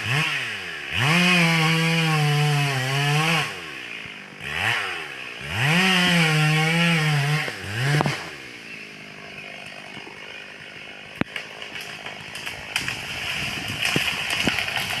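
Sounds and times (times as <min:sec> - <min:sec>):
chainsaw revving and idling: 0:00.0 - 0:15.0
sharp cracks and crackling: 0:09.6 - 0:15.0.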